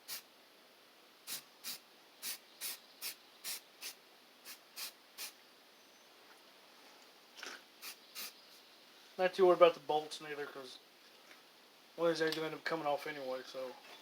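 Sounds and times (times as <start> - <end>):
spray can hissing: 0.0 - 0.2, 1.3 - 5.4, 7.8 - 8.5.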